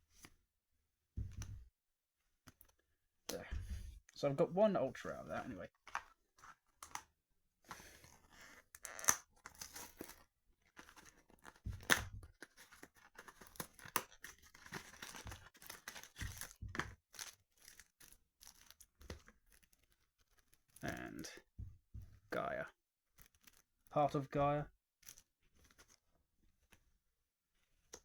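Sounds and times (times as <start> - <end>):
foil wrapper tearing and crinkling: 8.8 - 20.8.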